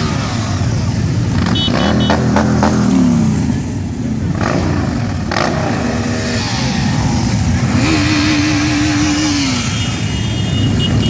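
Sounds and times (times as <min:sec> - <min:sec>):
motorcycle engines running: 0:00.0 - 0:11.0.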